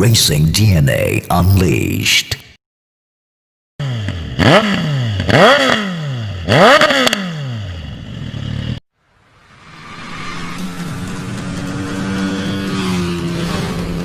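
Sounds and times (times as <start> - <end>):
motorcycle engine revving: 3.8 - 8.8, 9.7 - 14.0.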